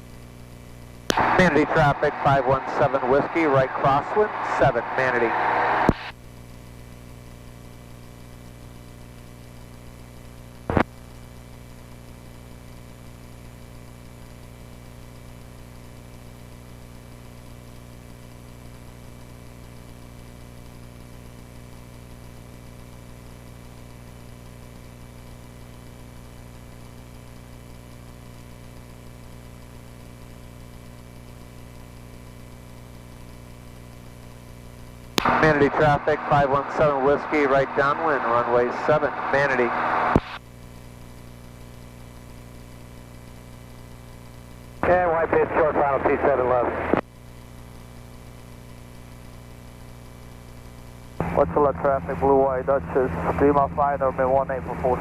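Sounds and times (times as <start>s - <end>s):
airplane engine drone: 1.1s - 6.1s, 35.2s - 40.4s, 44.8s - 47.0s, 51.2s - 55.0s.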